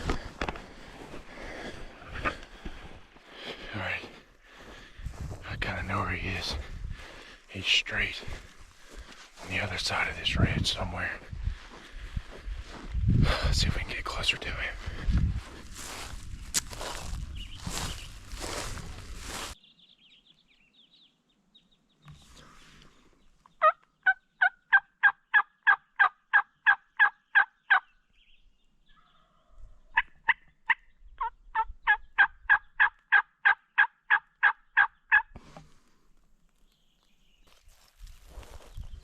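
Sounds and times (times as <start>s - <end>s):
turkey yelping: 23.6s - 27.9s, 29.0s - 35.3s.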